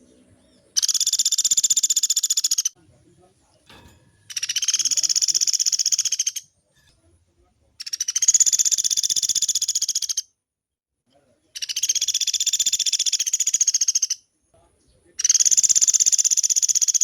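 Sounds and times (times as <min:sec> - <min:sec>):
songbird trilling: 0:00.0 - 0:02.8, 0:04.3 - 0:06.5, 0:07.8 - 0:10.3, 0:11.6 - 0:14.2, 0:15.2 - 0:17.0.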